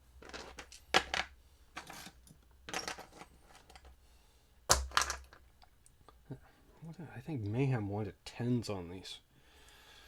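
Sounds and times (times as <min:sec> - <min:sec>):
tools clattering on workbench: 0:00.2 - 0:04.0.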